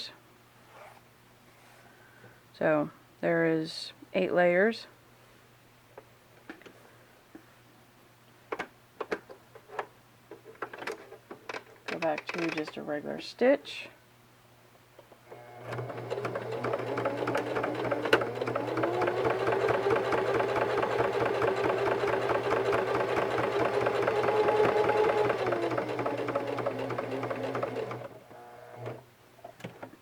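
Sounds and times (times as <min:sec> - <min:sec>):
sewing machine motor: 0:15.3 - 0:29.0.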